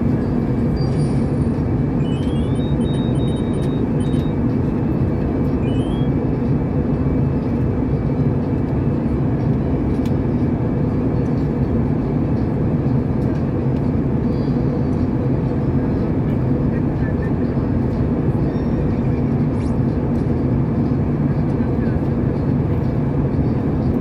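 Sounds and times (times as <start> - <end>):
airliner engine rumble: 0.0 - 24.0
faint short high beeps: 2.0 - 4.4, 5.6 - 6.1.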